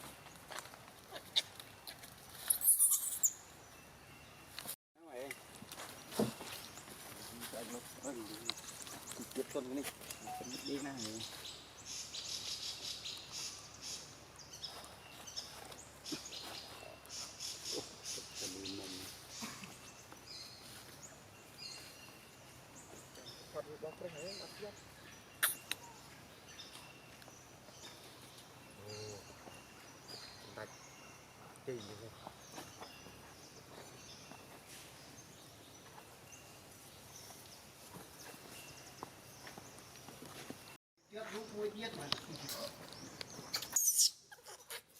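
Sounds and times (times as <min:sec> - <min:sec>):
bird chirps: 0:01.2 - 0:37.6, 0:40.6 - 0:44.8
high-pitched chirping pulses: 0:25.4 - 0:25.8.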